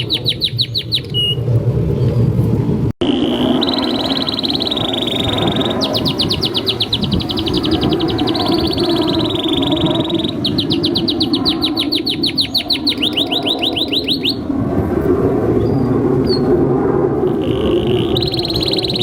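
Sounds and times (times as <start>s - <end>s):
canary singing trills: 0.0s - 1.4s, 3.0s - 14.5s, 17.3s - 19.0s.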